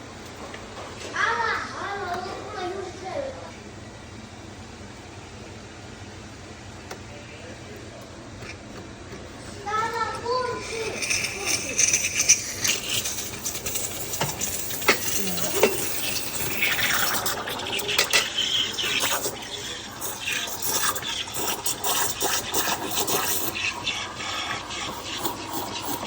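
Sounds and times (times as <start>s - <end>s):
espresso machine dispensing: 10.2s - 26.0s
liquid filling a cup: 10.5s - 26.0s.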